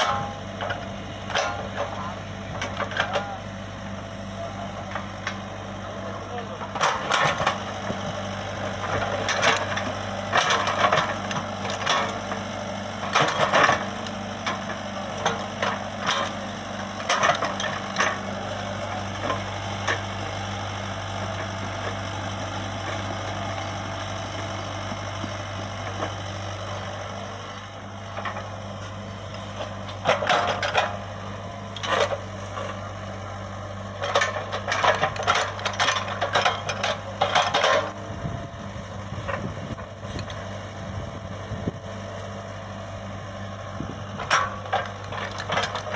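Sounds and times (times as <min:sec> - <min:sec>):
excavator diesel engine running: 0:00.0 - 0:45.9
metallic clanks and rattles: 0:08.8 - 0:12.3, 0:13.0 - 0:16.4, 0:17.0 - 0:20.2, 0:29.6 - 0:31.0, 0:31.8 - 0:32.8, 0:34.0 - 0:38.0, 0:44.2 - 0:45.9.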